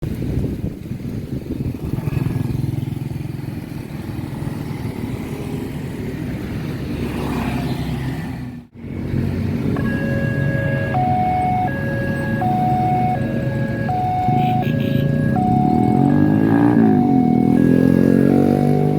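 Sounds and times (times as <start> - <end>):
road traffic: 0.0 - 18.9
wind: 0.0 - 18.9
level crossing warning alarm: 9.7 - 18.9.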